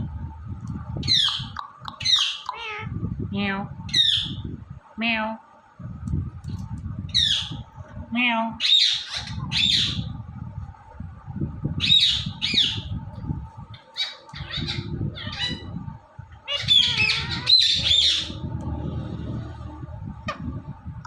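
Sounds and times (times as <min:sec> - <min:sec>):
parakeet squawking: 0:01.0 - 0:02.9, 0:03.9 - 0:04.4, 0:08.6 - 0:10.1, 0:13.8 - 0:15.7, 0:16.4 - 0:18.4.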